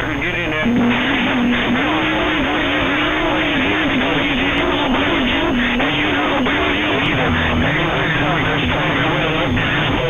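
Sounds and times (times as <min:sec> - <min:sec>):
radio hiss and static: 0:00.0 - 0:10.0.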